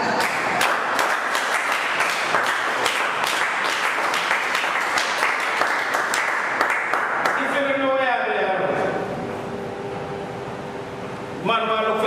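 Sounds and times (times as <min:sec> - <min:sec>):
congregation applauding: 0:00.0 - 0:07.7.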